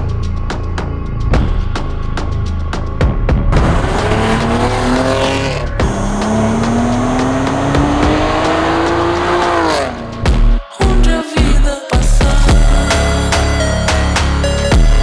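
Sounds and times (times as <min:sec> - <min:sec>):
car engine accelerating hard: 0:03.5 - 0:10.2.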